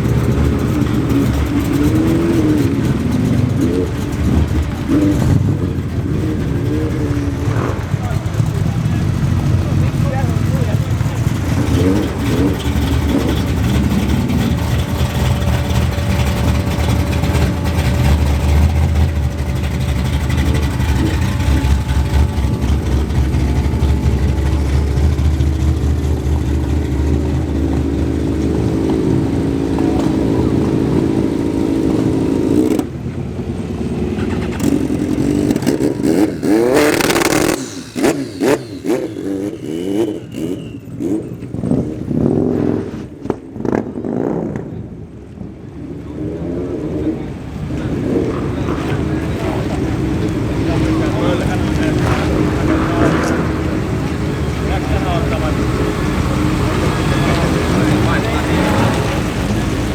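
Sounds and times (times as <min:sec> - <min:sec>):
engine revving: 0:00.0 - 0:44.6, 0:46.2 - 0:59.9
car engines rumbling past: 0:00.0 - 0:59.9.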